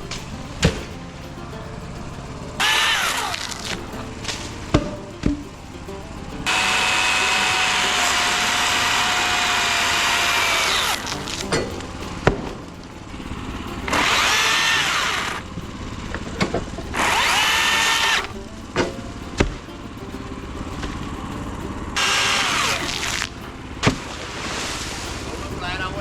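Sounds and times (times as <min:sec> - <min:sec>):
battery chainsaw cutting: 0:01.9 - 0:05.2, 0:06.3 - 0:15.5, 0:16.1 - 0:18.3, 0:22.0 - 0:25.9.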